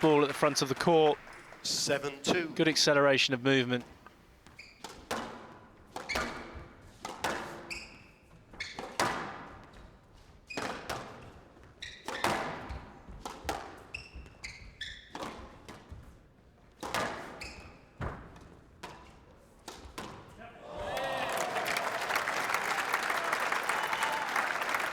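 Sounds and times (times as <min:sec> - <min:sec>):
shoes squeaking on court floor: 0:00.0 - 0:04.9, 0:13.9 - 0:15.2, 0:17.2 - 0:18.0.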